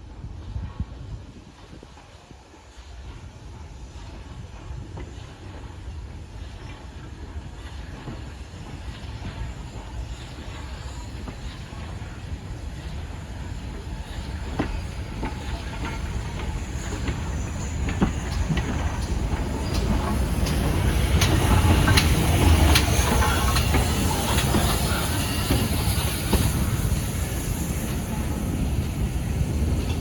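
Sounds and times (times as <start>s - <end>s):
train rumbling on rails: 0.0s - 30.0s
wheels clicking on track: 8.9s - 30.0s.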